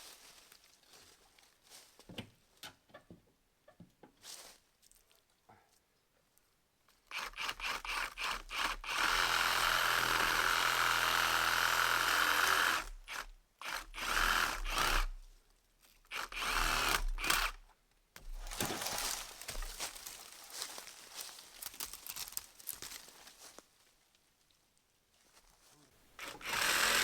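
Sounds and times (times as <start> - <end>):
power saw cutting wood: 7.1 - 15.2, 16.1 - 17.6, 26.2 - 27.0.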